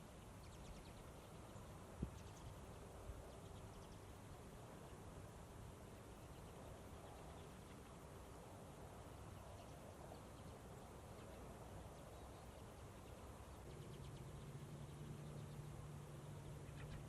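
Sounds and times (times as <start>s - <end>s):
low hum: 12.0s - 17.0s.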